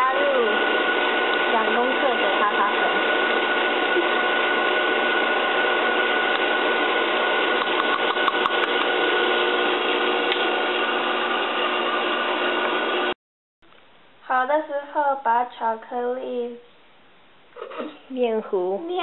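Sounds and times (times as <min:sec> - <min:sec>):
electric mixer whipping: 0:00.0 - 0:13.2.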